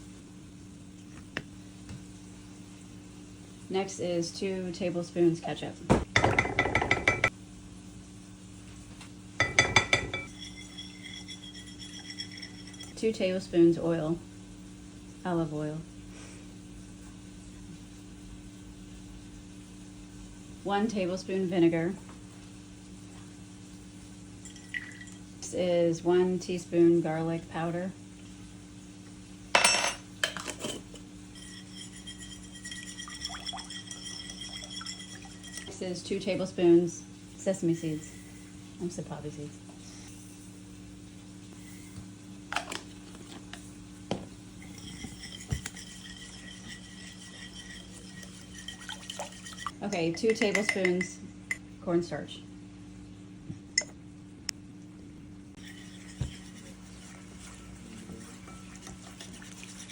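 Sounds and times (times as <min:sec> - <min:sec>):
steady low hum: 0:00.0 - 0:59.9
spoon tapping a bowl: 0:06.2 - 0:07.3, 0:09.4 - 0:12.8, 0:50.2 - 0:51.1
utensils clattering against bowl: 0:06.2 - 0:07.3, 0:09.4 - 0:13.0, 0:29.6 - 0:35.9, 0:44.6 - 0:51.2, 0:55.6 - 0:59.7.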